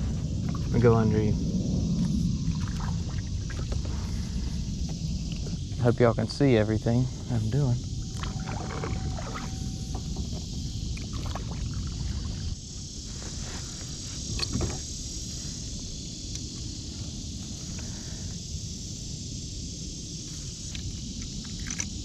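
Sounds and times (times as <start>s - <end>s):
steady low rumble: 0.0s - 17.6s
high insect drone: 0.0s - 22.0s
water sloshing: 7.9s - 12.6s
paddle knocking against boat: 8.1s - 11.8s.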